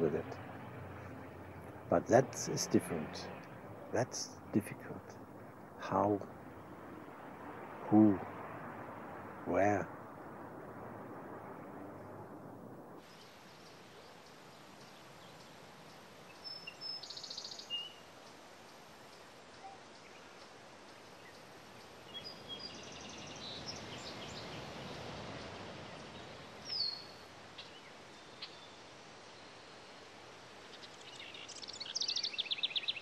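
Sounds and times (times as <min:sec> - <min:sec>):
faint outdoor hiss: 0:00.0 - 0:33.0
songbirds chirping: 0:00.0 - 0:33.0.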